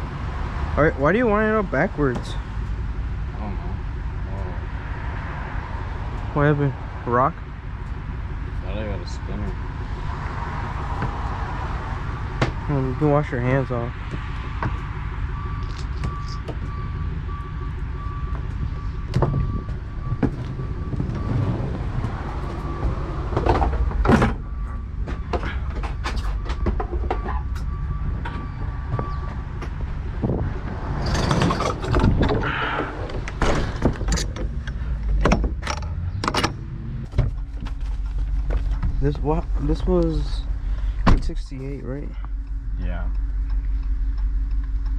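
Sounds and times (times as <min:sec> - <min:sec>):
engine running: 0:00.0 - 0:44.9
knocks and clatter: 0:19.1 - 0:39.7.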